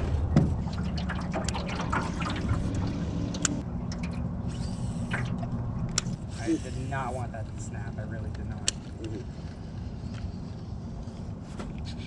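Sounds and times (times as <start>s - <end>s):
water trickling and splashing: 0.0s - 5.9s
small outboard motor running: 0.0s - 7.1s.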